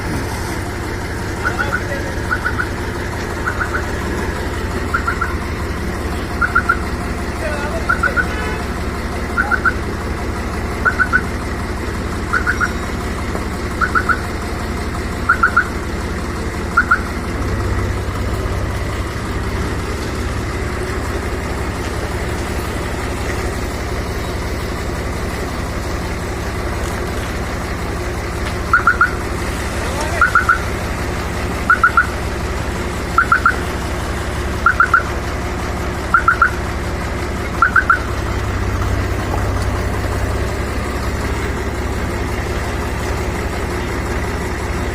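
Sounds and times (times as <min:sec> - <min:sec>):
tractor engine running: 0:00.0 - 0:44.9
short high doubled chirp: 0:06.4 - 0:06.8, 0:31.7 - 0:32.1.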